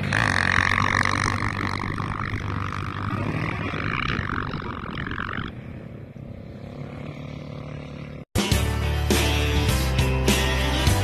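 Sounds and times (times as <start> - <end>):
off-road vehicle engines running: 0.0 - 8.3
music with steady beat: 8.4 - 11.0.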